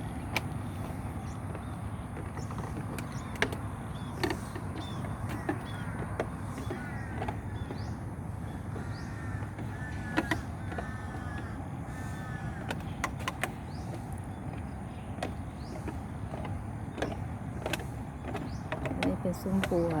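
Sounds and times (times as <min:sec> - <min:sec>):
steady low rumble: 0:00.0 - 0:20.0
bird cawing calls: 0:03.9 - 0:15.0.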